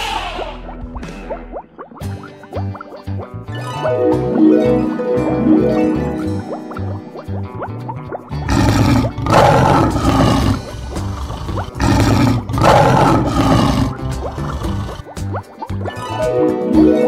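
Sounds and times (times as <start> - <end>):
light background music: 0.0 - 17.0
lion roaring: 8.4 - 15.1.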